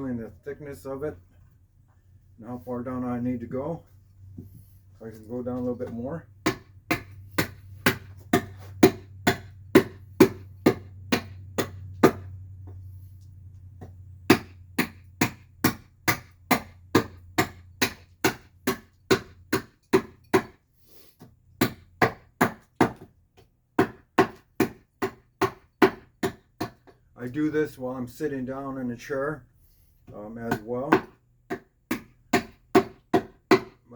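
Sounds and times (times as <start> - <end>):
low steady hum: 0.0 - 20.4
carving tool chopping wood: 5.9 - 12.3, 13.8 - 20.6, 21.2 - 27.0, 30.1 - 33.9.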